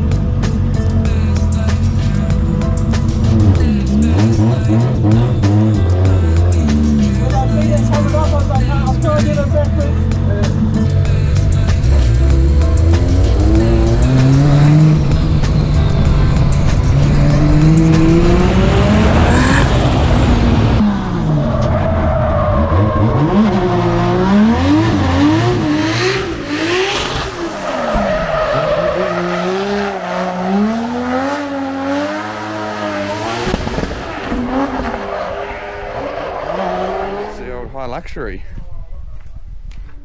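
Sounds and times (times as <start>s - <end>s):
car engines revving hard: 0.0s - 37.5s
tyres squealing: 24.6s - 34.2s.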